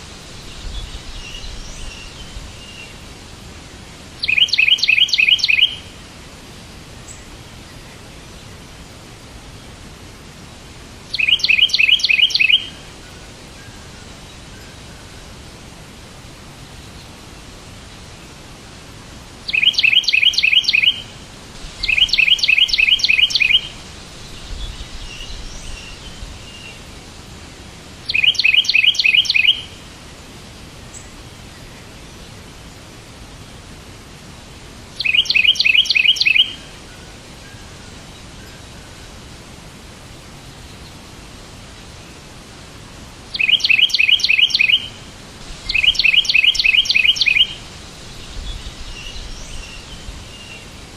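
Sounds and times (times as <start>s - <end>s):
steady hiss: 0.0s - 50.9s
faint bird twittering: 0.4s - 6.0s, 11.1s - 15.4s, 19.5s - 26.9s, 28.0s - 29.9s, 35.0s - 39.2s, 43.3s - 50.9s
bird rapid repeated chirps: 4.2s - 5.8s, 11.1s - 12.7s, 19.5s - 21.0s, 21.8s - 23.7s, 28.1s - 29.7s, 35.0s - 36.6s, 43.3s - 45.0s, 45.6s - 47.6s.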